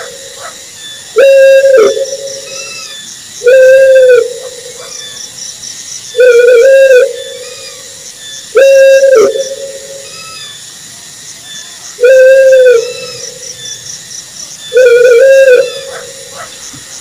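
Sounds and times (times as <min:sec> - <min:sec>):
owl hooting: 0:00.0 - 0:05.2, 0:06.1 - 0:10.6, 0:12.0 - 0:13.7, 0:14.7 - 0:16.6
higher answering owl notes: 0:14.7 - 0:16.4.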